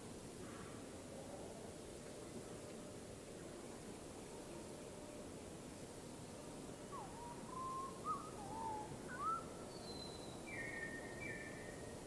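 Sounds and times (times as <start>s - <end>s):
steady background hiss: 0.0s - 12.0s
bird singing whistled notes: 6.9s - 11.9s.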